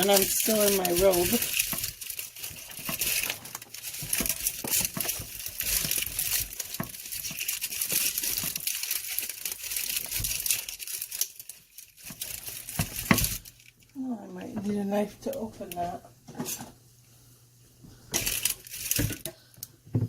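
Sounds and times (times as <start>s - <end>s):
packaging crinkling and crackling: 0.0s - 14.0s, 18.0s - 19.8s.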